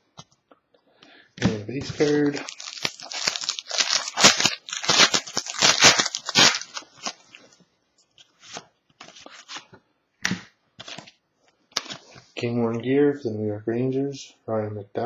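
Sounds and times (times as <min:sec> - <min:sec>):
foil wrapper tearing and crinkling: 0:01.8 - 0:07.4, 0:08.5 - 0:09.7
cards rustling and clicking: 0:01.8 - 0:07.5, 0:08.2 - 0:09.8, 0:10.8 - 0:11.1.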